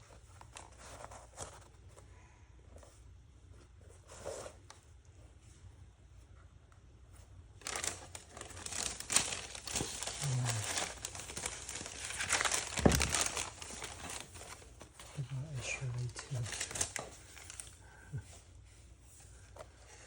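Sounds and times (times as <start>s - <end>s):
wrapping crinkling and tearing: 7.6s - 18.2s.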